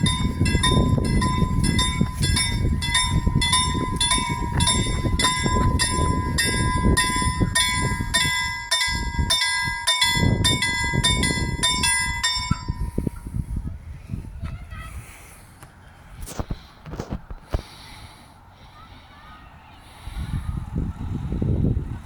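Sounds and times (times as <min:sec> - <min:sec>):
level crossing bell ringing: 0:00.0 - 0:13.0
freight train rumble: 0:00.0 - 0:22.0.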